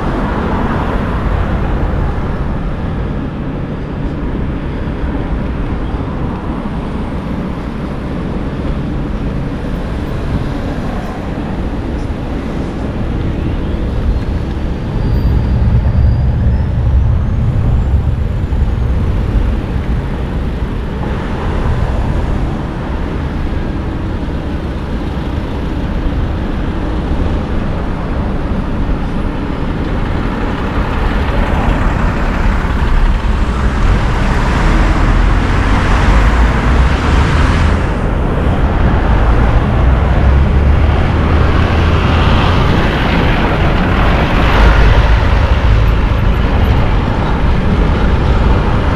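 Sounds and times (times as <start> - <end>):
wind rumbling on microphone: 0.0 - 48.9.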